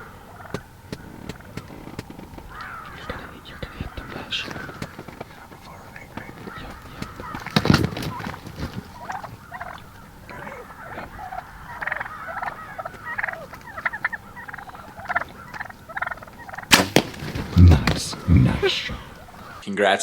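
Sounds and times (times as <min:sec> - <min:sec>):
wild turkeys calling: 0:00.0 - 0:19.6
sharp crack: 0:16.6 - 0:19.6.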